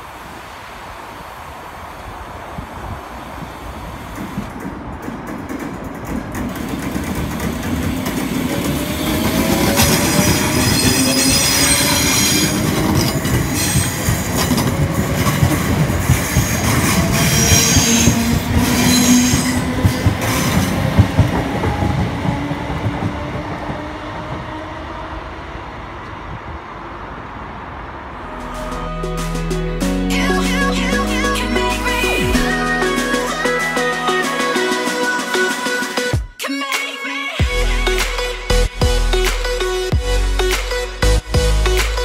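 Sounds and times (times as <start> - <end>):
wheels squealing: 0.0 - 22.7
train rumble passing: 0.0 - 35.4
wheels clicking over rail joints: 3.3 - 24.6
rising whines: 8.1 - 36.3.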